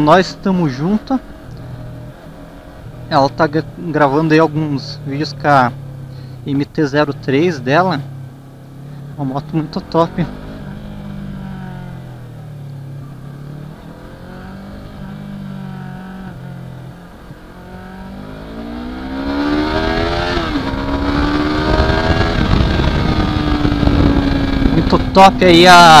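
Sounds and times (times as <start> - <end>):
motorcycle engine accelerating: 0.0 - 26.0
wind noise: 19.2 - 25.4.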